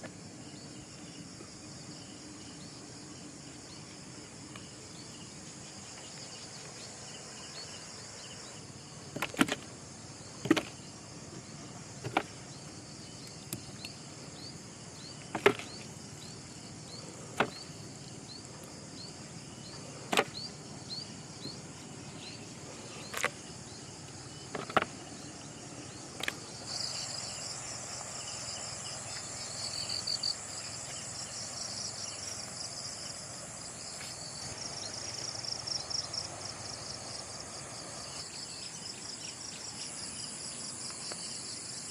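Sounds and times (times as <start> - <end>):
dense insect trill: 0.0 - 41.9
insects chirping: 0.0 - 41.9.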